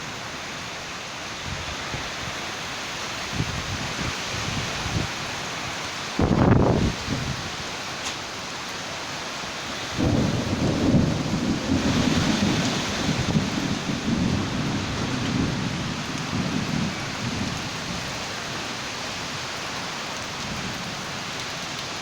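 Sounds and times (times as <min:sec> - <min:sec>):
rain falling: 0:00.0 - 0:22.0
rolling thunder rumble: 0:09.9 - 0:18.1.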